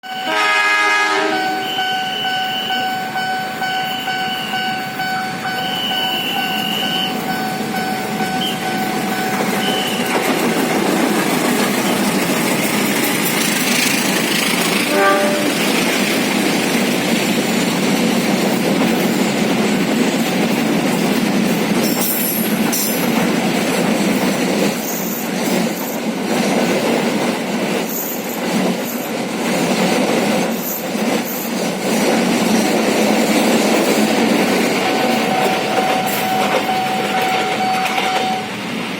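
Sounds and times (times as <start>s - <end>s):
train horn: 0.0s - 7.3s, 14.7s - 15.9s, 35.0s - 38.6s
train wheels rumbling on rails: 0.0s - 38.9s
high wheel squeals: 1.3s - 10.8s, 34.8s - 38.6s.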